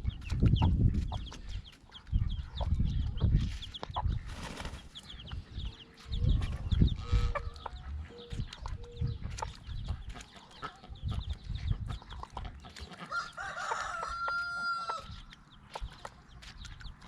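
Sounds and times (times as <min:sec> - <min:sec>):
chickens clucking: 0:00.0 - 0:17.0
chicks cheeping: 0:00.0 - 0:17.0.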